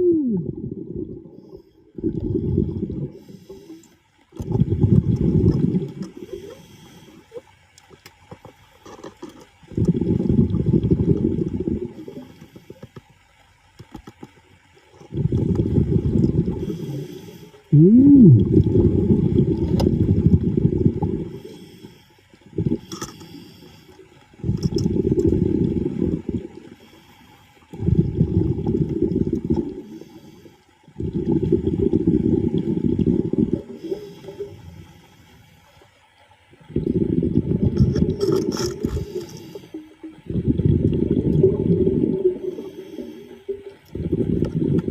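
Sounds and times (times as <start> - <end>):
bubbling exhaled air underwater: 0.0 - 7.5, 9.6 - 12.8, 15.0 - 21.8, 22.4 - 23.4, 24.0 - 35.1, 36.5 - 44.9
faint hiss of inhalation: 6.2 - 7.3, 16.6 - 17.7, 21.4 - 22.3, 22.9 - 24.0, 29.8 - 30.7, 33.8 - 35.8, 38.8 - 39.9, 42.4 - 43.4.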